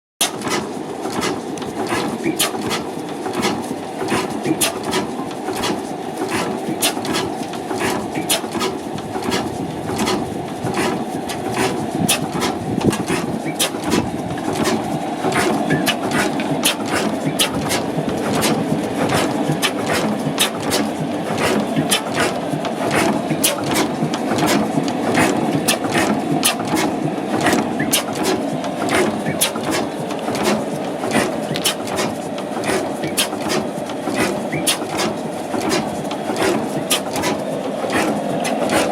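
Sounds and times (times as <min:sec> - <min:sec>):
oil engine running slowly: 0:00.2 - 0:38.9
sharp engine clacks: 0:00.2 - 0:38.9.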